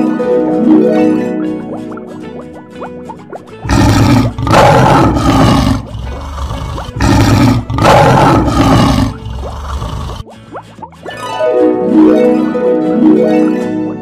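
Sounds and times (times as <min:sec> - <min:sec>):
lion roaring: 0:03.6 - 0:10.2.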